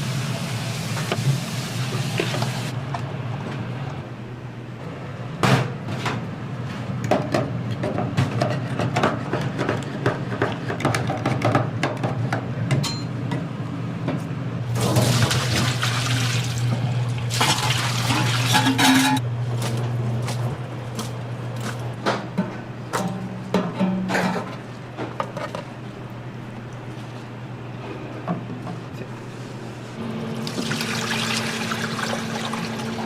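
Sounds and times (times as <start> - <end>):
utensils and dishes clinking: 12.7 - 13.2, 17.4 - 19.2, 23.0 - 24.6.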